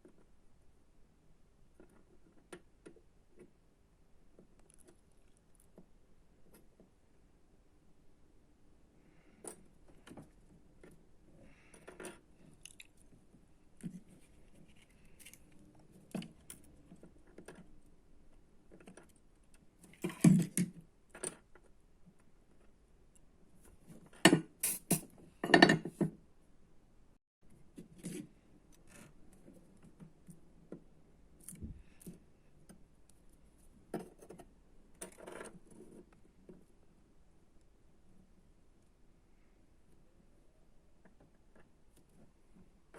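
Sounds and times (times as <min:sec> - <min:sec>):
small tools clicking and scraping: 0:09.4 - 0:13.2, 0:13.8 - 0:17.9, 0:23.2 - 0:25.8.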